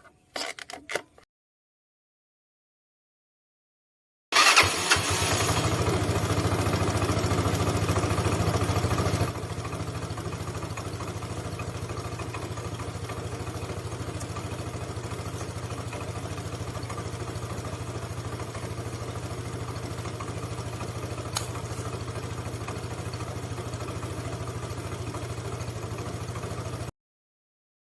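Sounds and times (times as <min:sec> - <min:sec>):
scooter engine idling: 0:04.4 - 0:26.9
short click: 0:21.3 - 0:21.6.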